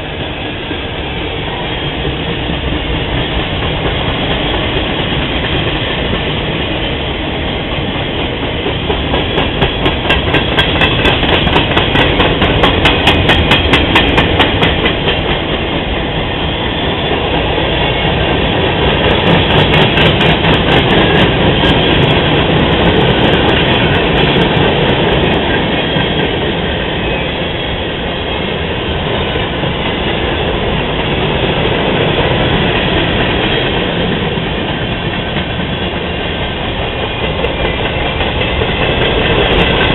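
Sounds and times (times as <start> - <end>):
freight train rumbling past: 0.0 - 39.9
train wheels clicking on rail joints: 0.0 - 39.9.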